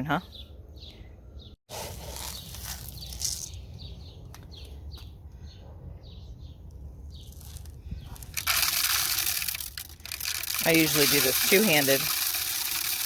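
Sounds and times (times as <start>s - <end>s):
small birds chirping: 0.0s - 8.4s
birdseed pouring into a feeder: 8.3s - 13.0s.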